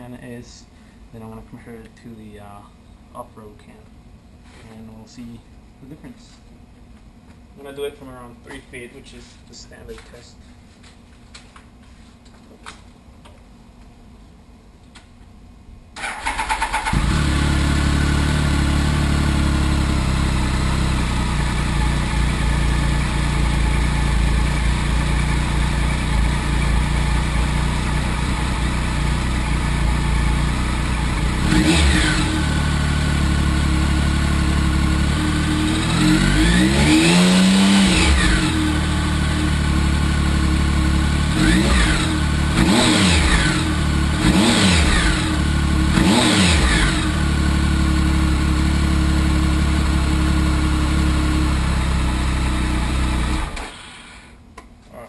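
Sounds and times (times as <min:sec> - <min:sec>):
motorcycle engine idling and revving: 0:16.0 - 0:54.3.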